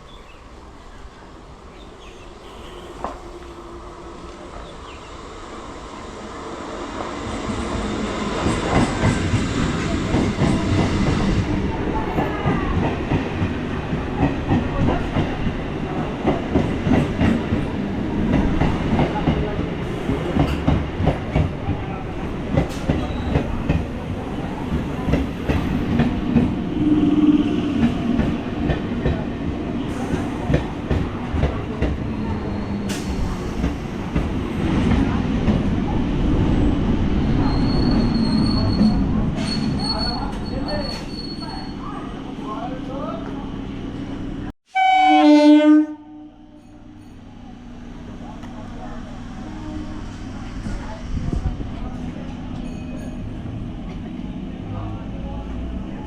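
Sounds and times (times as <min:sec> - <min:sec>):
electric train rumble: 0:00.3 - 0:40.5.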